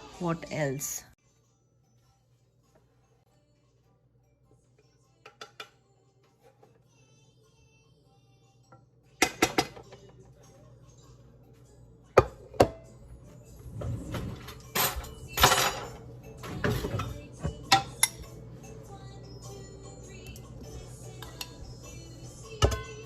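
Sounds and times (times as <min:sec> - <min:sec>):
dishes scraping and clattering: 0:13.7 - 0:18.4
plates and cutlery clinking: 0:14.2 - 0:18.3.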